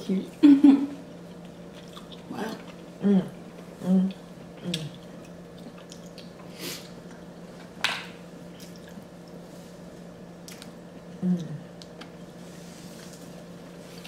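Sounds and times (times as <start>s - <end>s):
low steady hum: 0.0s - 14.0s
wet chewing and smacking: 1.1s - 6.4s, 10.4s - 11.1s
person humming: 11.2s - 11.7s.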